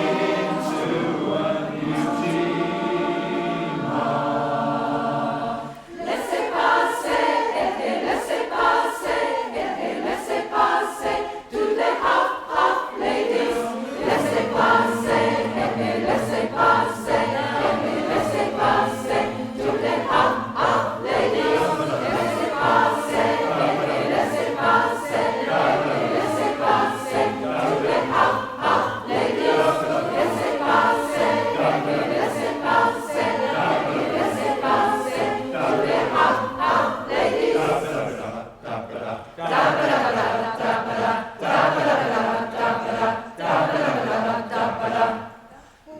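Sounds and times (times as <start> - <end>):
choir singing in harmony: 0.0 - 45.9.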